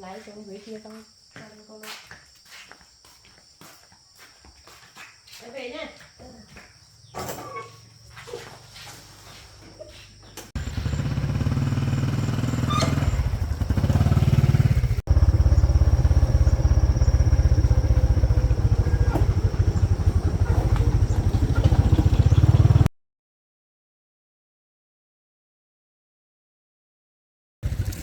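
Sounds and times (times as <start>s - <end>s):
small engine chugging: 10.5s - 22.9s, 27.6s - 28.0s.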